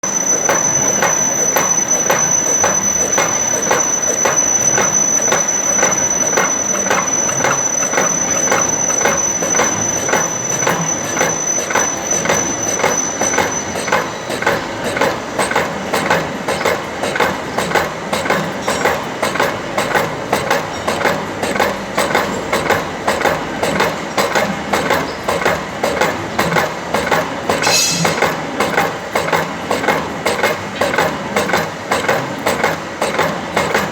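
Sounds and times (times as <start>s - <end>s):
slotting machine cutting metal: 27.6s - 28.5s
thin high whine: 27.6s - 28.5s.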